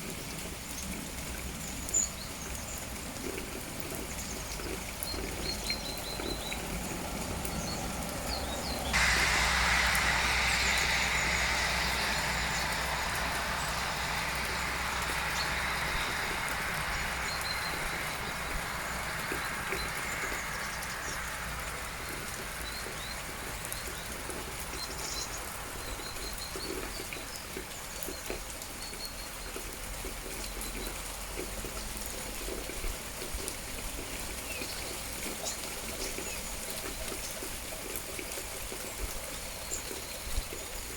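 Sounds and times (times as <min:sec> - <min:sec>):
steady rain dripping: 0:00.0 - 0:40.9
loud rushing hiss: 0:06.3 - 0:27.2.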